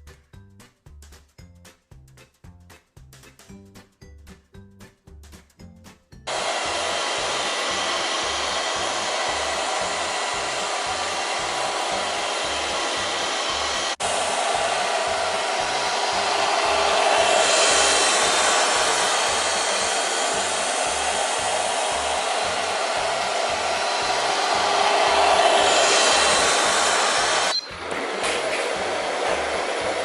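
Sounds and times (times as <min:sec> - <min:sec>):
background music beat: 0:00.0 - 0:30.0
robot vacuum suction hiss: 0:06.3 - 0:30.0.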